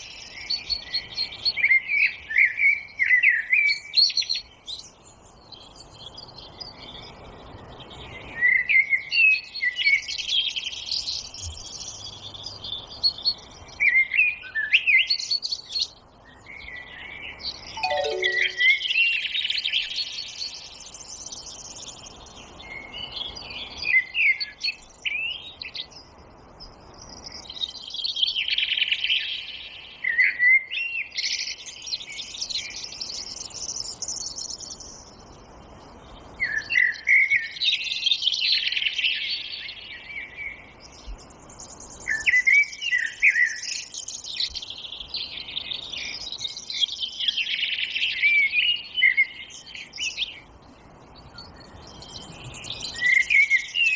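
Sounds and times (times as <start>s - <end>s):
songbirds chirping and trilling: 0.0s - 53.9s
soft steady hiss: 9.4s - 53.9s.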